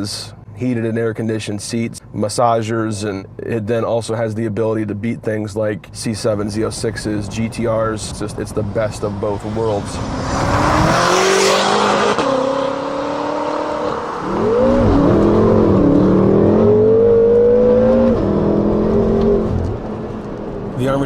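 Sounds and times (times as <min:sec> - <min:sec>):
car engine accelerating hard: 0:06.6 - 0:21.0.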